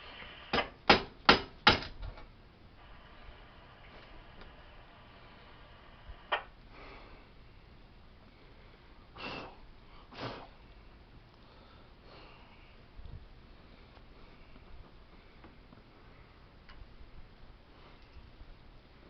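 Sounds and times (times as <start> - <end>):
short sniff-like hisses: 9.2 - 10.6.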